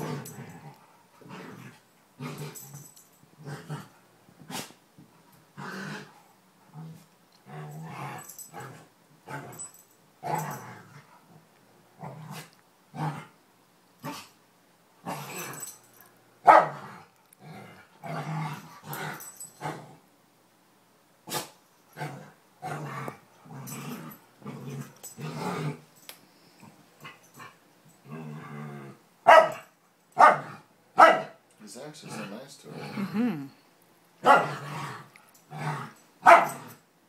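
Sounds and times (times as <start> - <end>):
dogs growling and barking: 0.0 - 4.8, 5.5 - 13.4, 14.0 - 14.4, 15.0 - 20.0, 21.3 - 31.4, 34.2 - 36.8.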